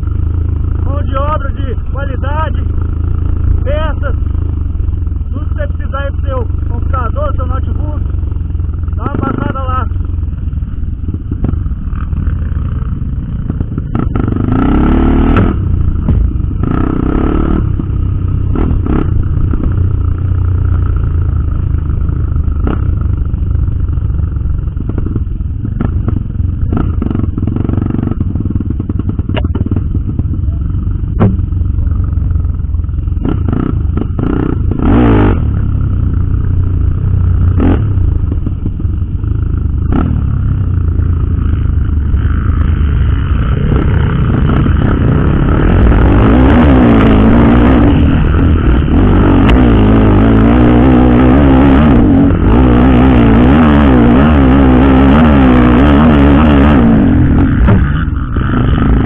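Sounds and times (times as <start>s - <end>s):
motorcycle engine running: 0.0s - 59.0s
knocks and clatter: 27.9s - 30.4s, 31.1s - 31.6s.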